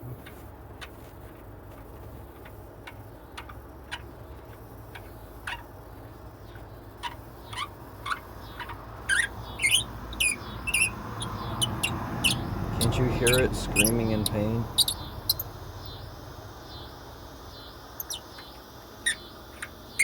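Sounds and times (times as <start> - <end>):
steady low hum: 0.0 - 20.0
bolt squeaking: 7.0 - 15.5.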